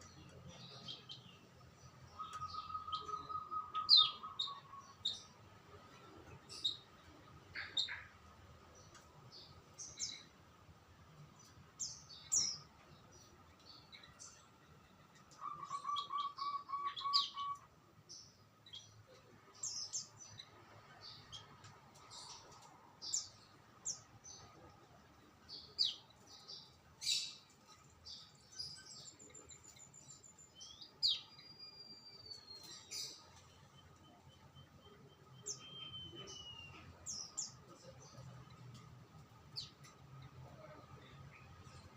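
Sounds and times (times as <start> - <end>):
repeated lower bird notes: 0.0 - 5.4, 13.7 - 20.5, 25.6 - 41.9
songbirds chirping: 0.0 - 41.9
whistled gliding bird notes: 34.8 - 36.9.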